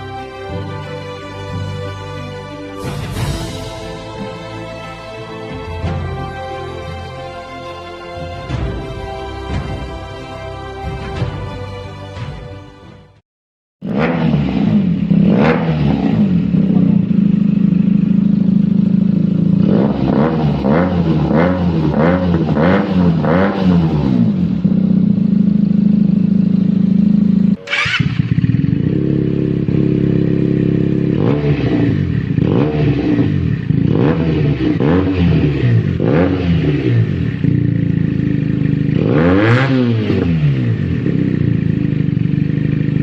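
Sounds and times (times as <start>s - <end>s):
engine throttle blips: 13.8s - 43.0s
motorcycle engine idling: 14.5s - 43.0s.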